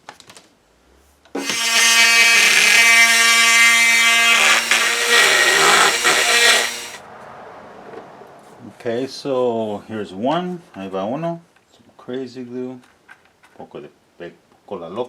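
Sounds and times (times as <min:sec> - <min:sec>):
handheld power tool running: 0:01.4 - 0:07.0.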